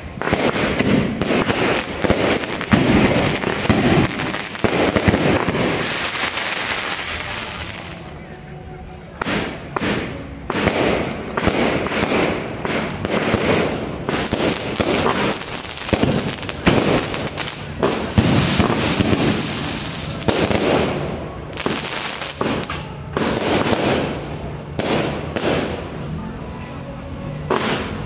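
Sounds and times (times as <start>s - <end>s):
fireworks shells bursting: 0.0s - 8.0s
fireworks crackle: 0.0s - 8.2s, 9.2s - 26.0s.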